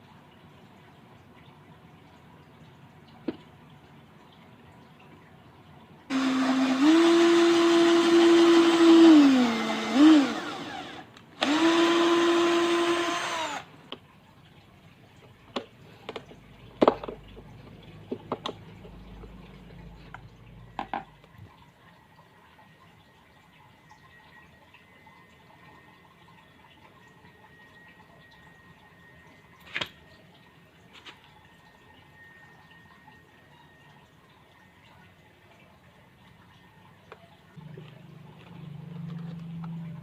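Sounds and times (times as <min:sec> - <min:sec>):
electric drill motor whining: 0:06.1 - 0:13.7.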